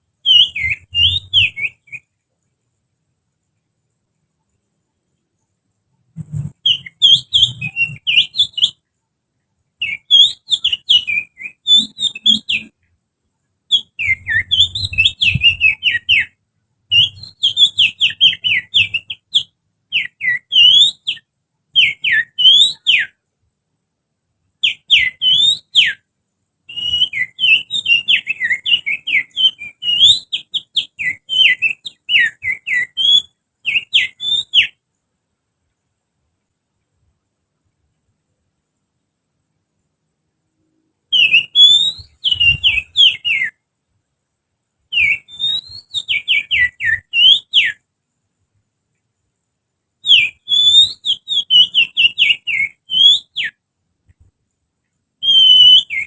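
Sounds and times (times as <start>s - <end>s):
person whistling birdsong: 0.2s - 2.1s, 6.2s - 8.8s, 9.8s - 12.7s, 13.7s - 16.3s, 16.9s - 21.2s, 21.8s - 23.2s, 24.6s - 26.0s, 26.7s - 34.8s, 41.1s - 43.6s, 44.9s - 47.8s, 50.1s - 53.6s, 55.2s - 56.0s.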